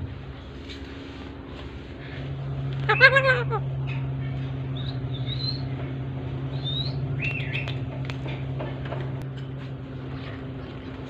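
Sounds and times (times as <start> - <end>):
steady low hum: 0.0 - 11.0
bird chirps and whistles: 4.7 - 5.7, 6.5 - 7.8.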